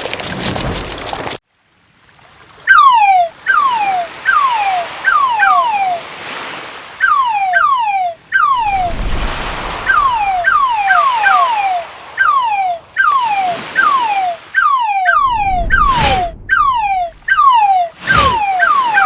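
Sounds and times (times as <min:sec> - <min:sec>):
surf-like wash: 0:02.0 - 0:15.2
whistle-like falling chirps: 0:02.7 - 0:06.2, 0:07.0 - 0:19.0.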